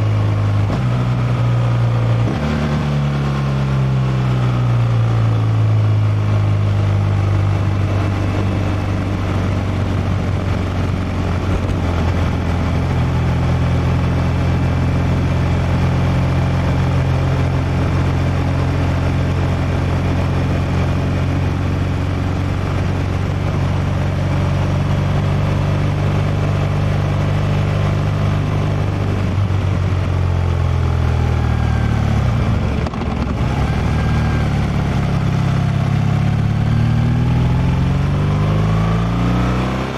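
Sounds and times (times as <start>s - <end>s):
motorcycle engine cruising: 0.0s - 39.9s
wind rush over microphone: 7.6s - 13.6s.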